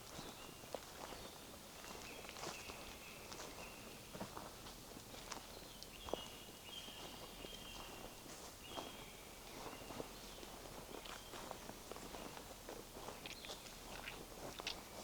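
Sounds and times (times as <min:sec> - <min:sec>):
footsteps on forest path: 0:00.0 - 0:15.0.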